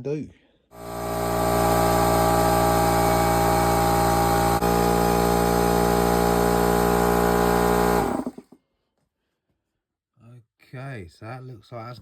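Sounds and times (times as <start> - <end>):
air compressor running: 0.7 - 8.5.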